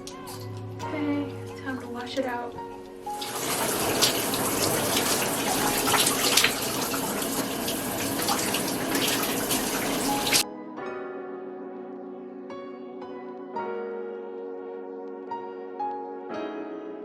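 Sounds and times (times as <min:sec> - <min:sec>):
water running from a tap: 0:00.0 - 0:10.4
soft background music: 0:00.0 - 0:17.0.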